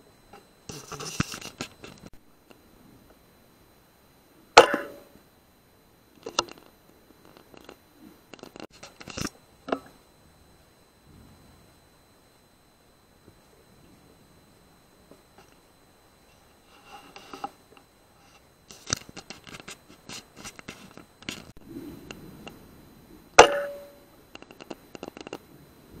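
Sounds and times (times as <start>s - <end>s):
rifle handling clicks and scrapes: 0.7s - 2.1s, 18.2s - 21.6s.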